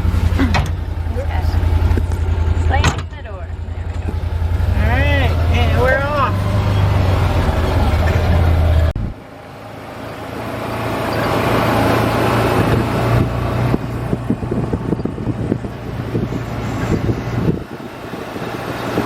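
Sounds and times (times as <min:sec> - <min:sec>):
knocks and rattles from ride: 0:00.0 - 0:04.7
vehicle engine hum: 0:00.0 - 0:19.0.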